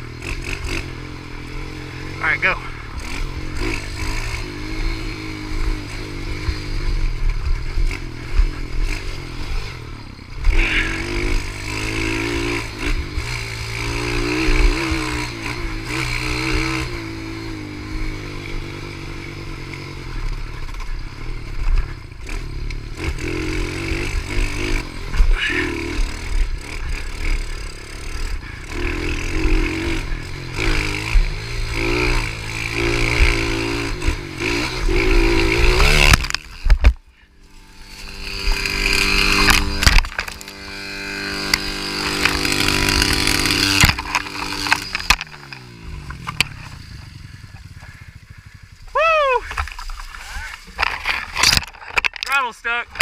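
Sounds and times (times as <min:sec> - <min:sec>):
pit bike engine revving: 0:00.0 - 0:53.0.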